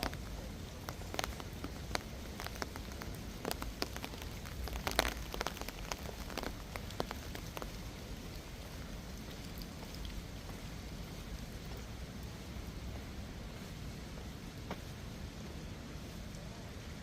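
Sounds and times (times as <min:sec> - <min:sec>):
raindrops tapping close by: 0:00.0 - 0:13.2
steady rain: 0:00.0 - 0:17.0.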